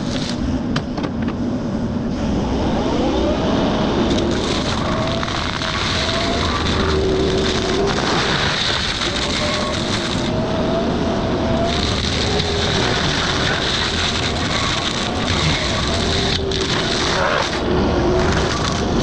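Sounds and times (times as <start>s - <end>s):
excavator engine: 0.0s - 19.0s
hydraulic mulcher whine: 0.0s - 19.0s.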